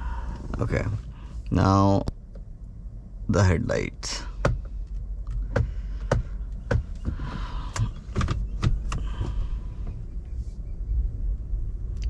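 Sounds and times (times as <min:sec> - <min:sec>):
low road rumble in cabin: 0:00.0 - 0:12.0.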